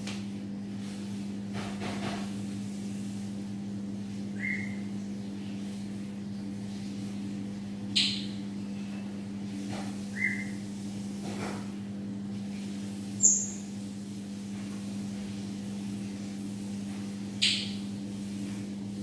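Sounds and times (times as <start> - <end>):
steady low hum: 0.0 - 19.0
high bird chirps: 4.4 - 4.8, 8.0 - 8.4, 10.1 - 10.6, 13.2 - 13.7.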